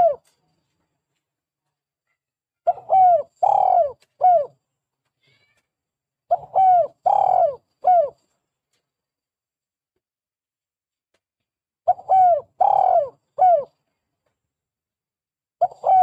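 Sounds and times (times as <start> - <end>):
dove cooing: 0.0 - 0.3, 2.7 - 4.6, 6.3 - 8.2, 11.9 - 13.8, 15.6 - 16.0.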